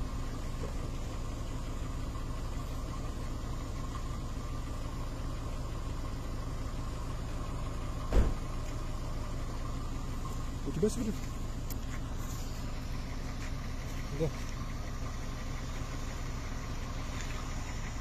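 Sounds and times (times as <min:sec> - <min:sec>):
car engine idling: 0:00.0 - 0:18.0
short thump: 0:08.1 - 0:08.5.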